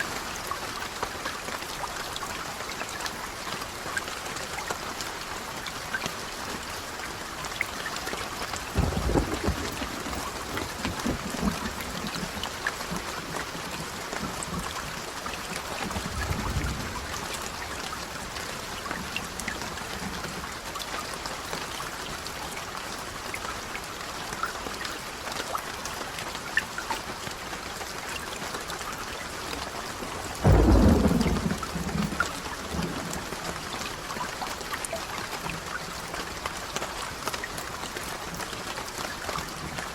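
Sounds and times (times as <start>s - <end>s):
rain pattering: 0.0s - 39.9s
thunder rumbling: 8.8s - 13.0s, 15.8s - 17.7s, 30.2s - 33.8s.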